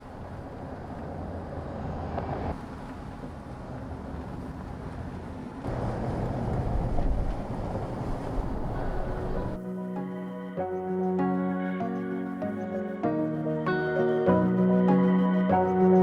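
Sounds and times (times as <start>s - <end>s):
vehicle engine and road noise: 0.0s - 9.6s.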